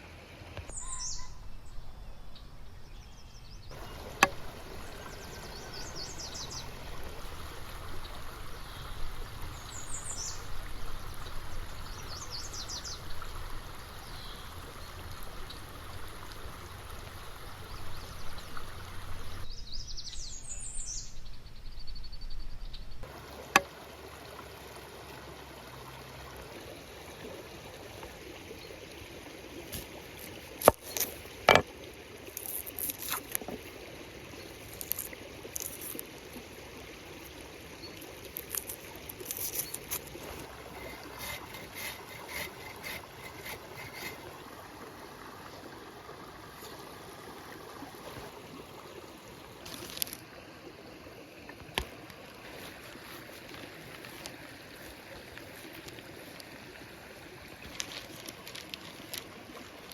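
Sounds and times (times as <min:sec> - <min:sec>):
bird chirps: 0:00.7 - 0:06.7
flowing water rushing: 0:03.7 - 0:19.5, 0:23.0 - 0:59.9.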